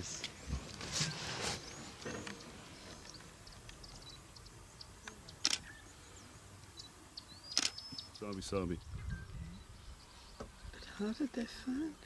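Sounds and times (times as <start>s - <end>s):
sharp clicks: 5.4s - 5.7s, 7.5s - 7.8s.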